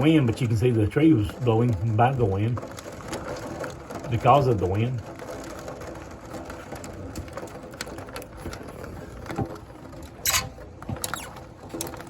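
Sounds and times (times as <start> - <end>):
hail and rain on window glass: 0.0 - 12.0.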